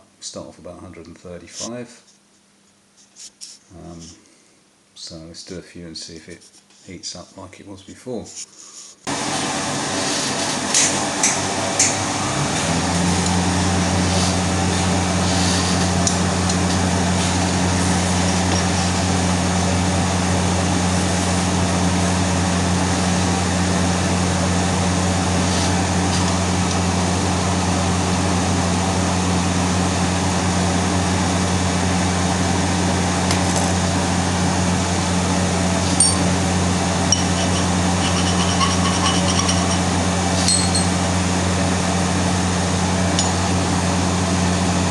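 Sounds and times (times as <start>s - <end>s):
steady low hum: 0.0s - 44.9s
welding arc hissing: 13.1s - 27.5s, 35.1s - 40.4s.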